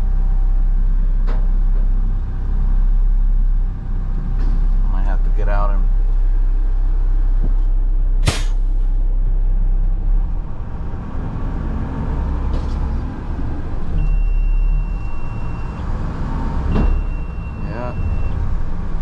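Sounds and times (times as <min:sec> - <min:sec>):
air brake hiss: 0:08.2 - 0:08.8.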